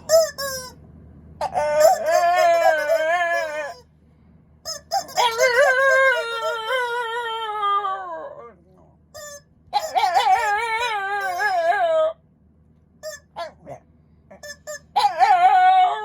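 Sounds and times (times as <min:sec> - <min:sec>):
squeaky toy: 0:00.0 - 0:00.8, 0:01.4 - 0:03.9, 0:04.7 - 0:07.2, 0:09.2 - 0:12.1, 0:13.0 - 0:13.7, 0:14.3 - 0:16.0
dog howling: 0:01.4 - 0:03.8, 0:05.0 - 0:08.6, 0:09.8 - 0:12.2, 0:14.9 - 0:16.0.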